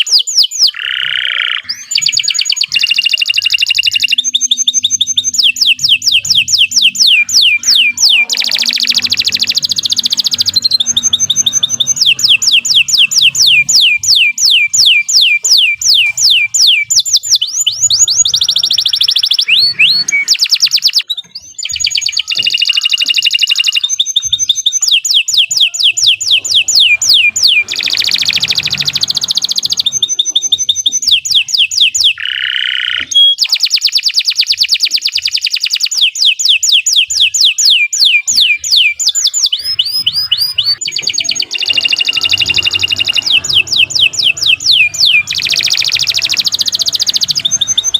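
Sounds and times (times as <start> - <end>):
canary singing trills: 0.0 - 47.9.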